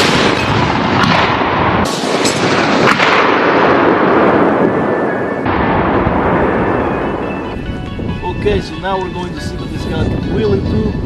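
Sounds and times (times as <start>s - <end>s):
autocannon firing: 0.0s - 4.4s
sharp gunfire cracks: 0.0s - 4.7s.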